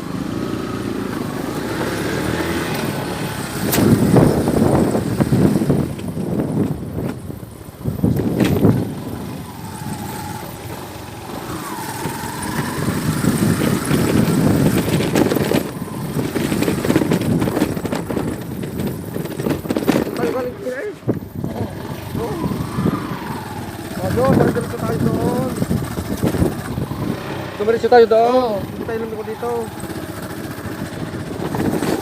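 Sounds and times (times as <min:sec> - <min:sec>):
road traffic: 0:00.0 - 0:32.0
vehicles passing: 0:00.0 - 0:32.0.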